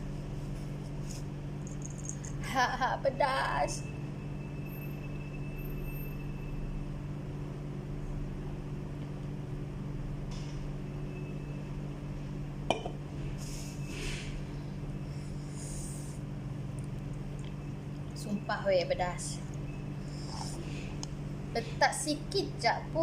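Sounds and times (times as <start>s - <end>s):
steady low hum: 0.0s - 23.0s
soft eating sounds: 15.9s - 18.2s.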